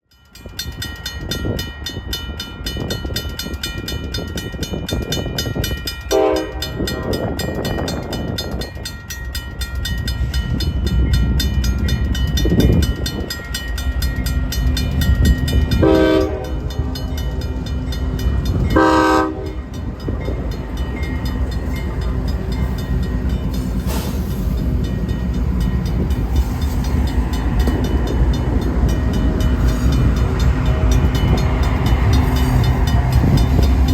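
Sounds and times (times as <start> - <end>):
train rumble: 0.1 - 33.9
locomotive air horn blasts: 6.1 - 7.1, 15.8 - 16.7, 18.7 - 19.6.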